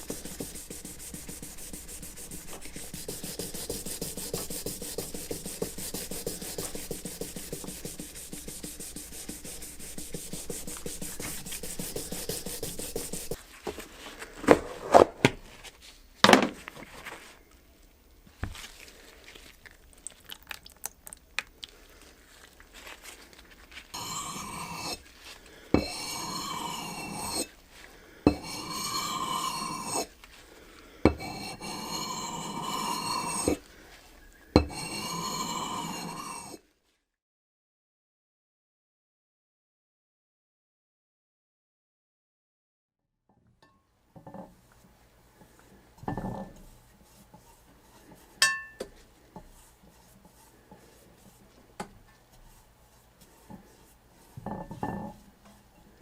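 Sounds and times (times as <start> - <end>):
abrasive rubbing strokes: 0.0 - 13.4, 23.9 - 25.0, 25.8 - 27.5, 28.4 - 30.1, 31.3 - 33.6.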